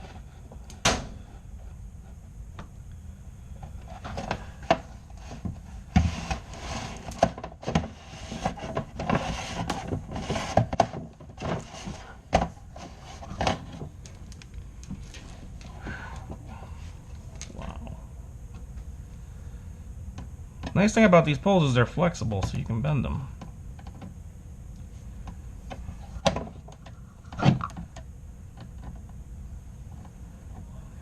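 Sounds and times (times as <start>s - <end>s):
poles knocking and scraping in duct: 0.0s - 2.7s, 3.6s - 16.5s.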